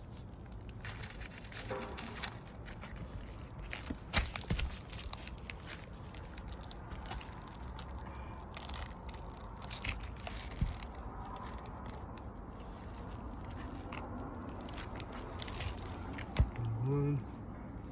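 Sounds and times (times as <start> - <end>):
shingles scraping and crackling: 0.6 - 8.0.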